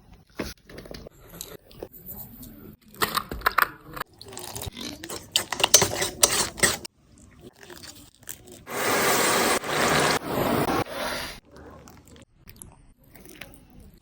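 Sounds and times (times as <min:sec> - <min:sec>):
scraping and crackling handling: 0:04.2 - 0:06.9
loud hiss: 0:08.7 - 0:11.4.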